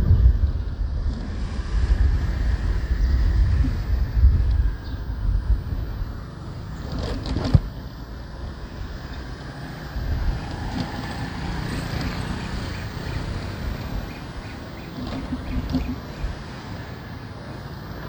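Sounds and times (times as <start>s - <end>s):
traffic noise: 0.0s - 18.0s
wind noise: 0.0s - 18.0s.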